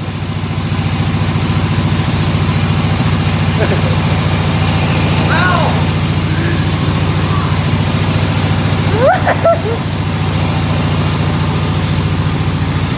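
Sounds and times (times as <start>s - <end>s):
sawing machine engine running: 0.0s - 12.9s
voice-like call: 4.8s - 9.8s.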